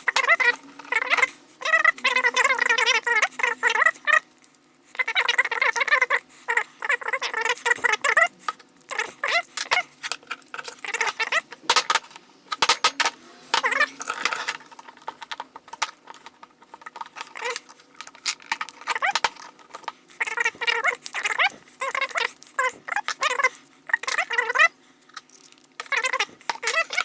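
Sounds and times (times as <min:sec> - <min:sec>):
metal tools clicking and scraping: 0:07.6 - 0:27.0.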